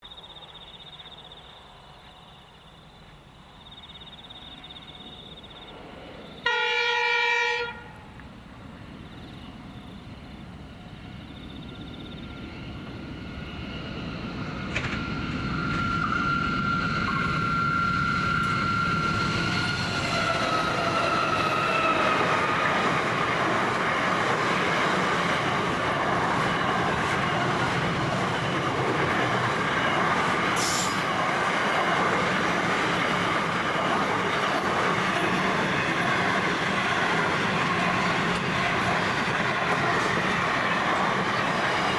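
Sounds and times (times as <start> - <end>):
train rumbling: 0.4 - 41.9
locomotive horn blast: 6.4 - 8.1
thin high squeal: 30.6 - 31.3.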